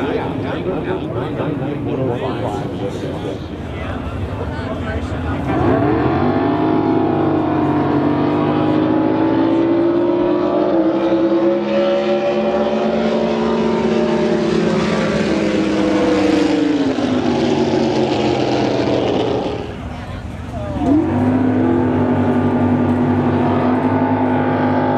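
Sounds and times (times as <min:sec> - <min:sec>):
boat engine at high revs: 0:05.1 - 0:24.9.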